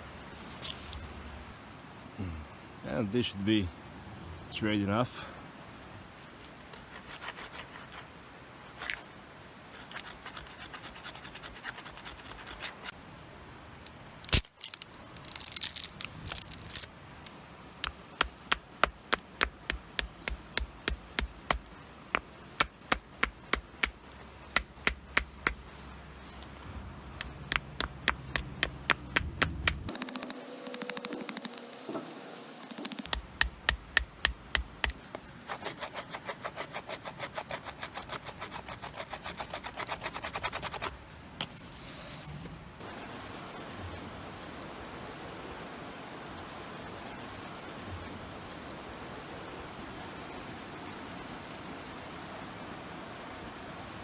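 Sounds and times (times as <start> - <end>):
stone scraping wooden stick: 34.5 - 41.6.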